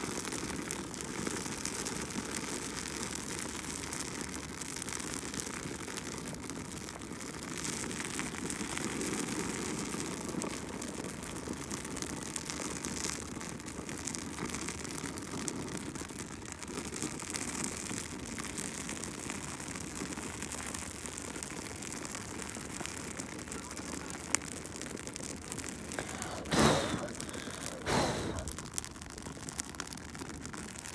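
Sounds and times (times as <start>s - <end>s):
bonfire crackling: 24.7s - 30.9s.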